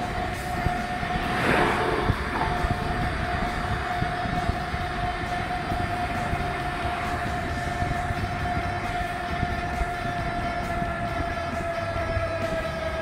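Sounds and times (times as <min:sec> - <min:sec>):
constant high whine: 0:00.0 - 0:13.0
train rumble: 0:00.0 - 0:13.0.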